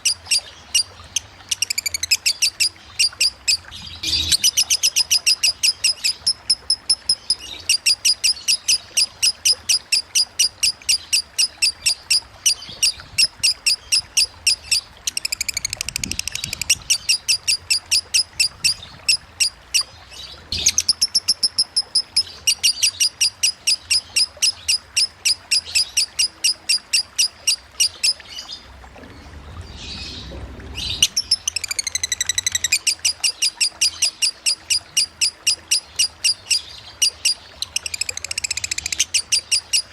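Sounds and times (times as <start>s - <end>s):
lovebird chirping trill: 0.0s - 19.9s.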